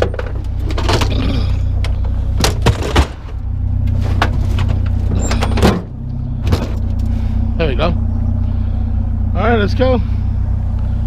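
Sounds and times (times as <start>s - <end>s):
vehicle engine idling: 0.0s - 11.0s
scrap items knocking and clattering: 2.4s - 3.2s.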